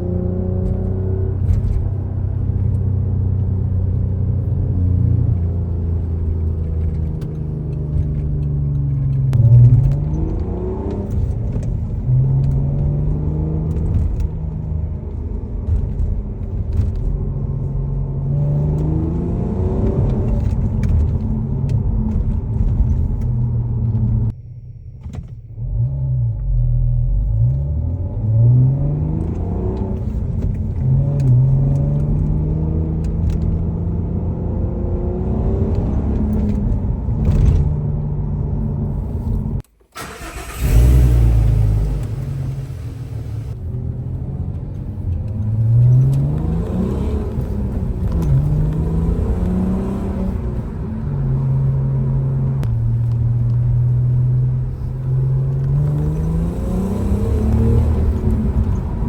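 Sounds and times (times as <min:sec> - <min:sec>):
car engine accelerating: 0:00.0 - 0:24.4, 0:25.0 - 0:59.0.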